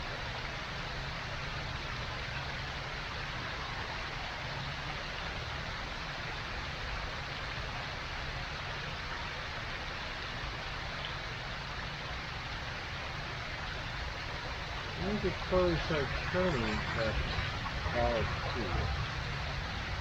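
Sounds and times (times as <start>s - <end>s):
low rumble: 14.5s - 20.0s.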